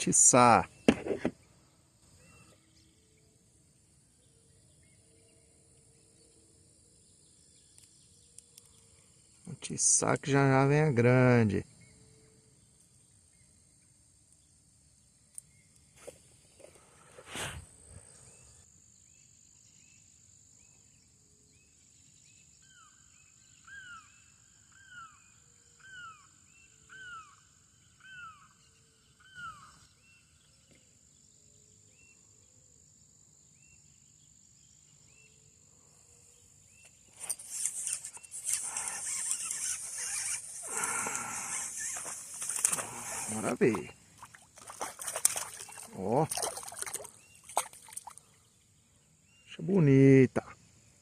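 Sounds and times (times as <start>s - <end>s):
high-pitched insect drone: 37.2s - 43.8s.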